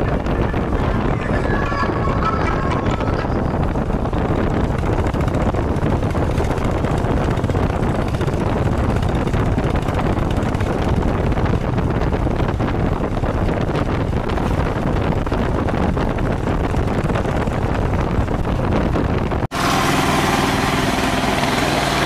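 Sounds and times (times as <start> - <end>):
vehicle engine and road noise: 0.0 - 22.0
wind rushing over microphone: 0.0 - 22.0.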